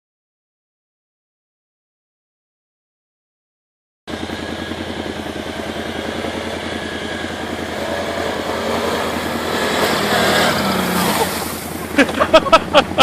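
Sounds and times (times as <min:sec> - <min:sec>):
atv engine low rumble: 0:04.1 - 0:13.0.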